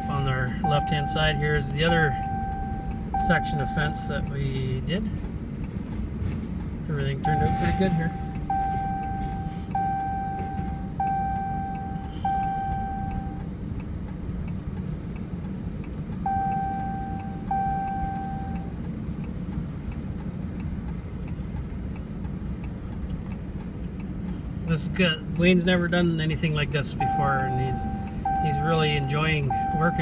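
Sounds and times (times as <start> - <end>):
seatbelt warning chime dinging: 0.0 - 5.2, 6.9 - 13.5, 15.8 - 18.9, 24.8 - 30.0
engine and road noise: 0.0 - 30.0
faint regular ticking: 0.0 - 30.0.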